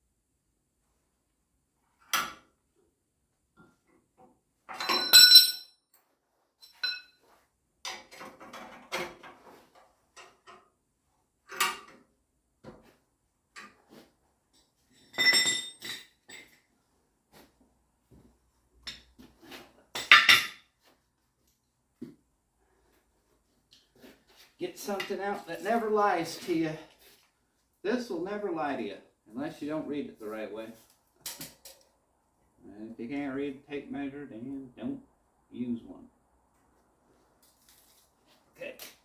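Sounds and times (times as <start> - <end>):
steel tools clanking on metal: 4.8 - 5.6, 6.6 - 7.1.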